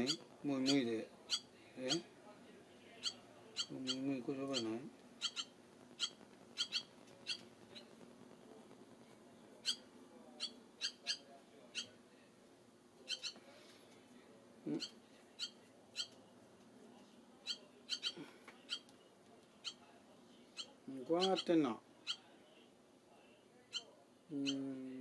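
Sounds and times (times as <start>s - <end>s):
barn swallow chirping: 0.0s - 2.0s, 3.0s - 7.9s, 9.6s - 12.0s, 13.0s - 13.4s, 14.7s - 16.1s, 17.4s - 18.9s, 20.6s - 22.3s.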